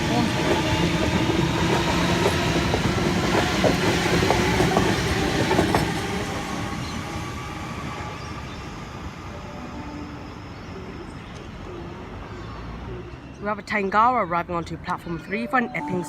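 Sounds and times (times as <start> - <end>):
train wheels clicking over rail joints: 1.2 - 6.2.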